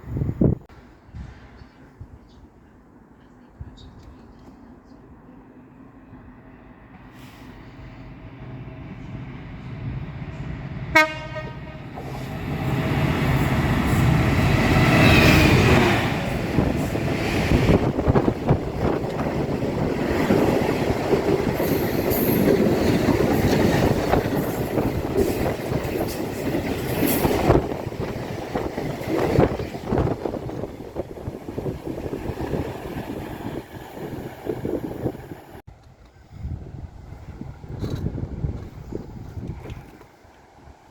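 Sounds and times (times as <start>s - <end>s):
train rumble and wheel clatter: 0.0s - 40.9s
train horn blast: 10.9s - 12.1s.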